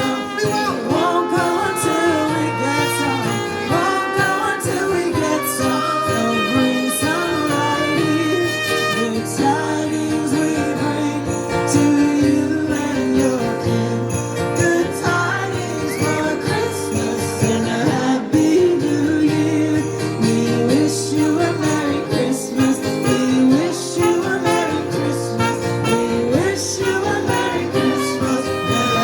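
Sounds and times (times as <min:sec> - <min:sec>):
live band playing: 0:00.0 - 0:10.6, 0:21.4 - 0:29.0
jingle bells shaking: 0:00.0 - 0:29.0
strummed guitar: 0:00.0 - 0:29.0.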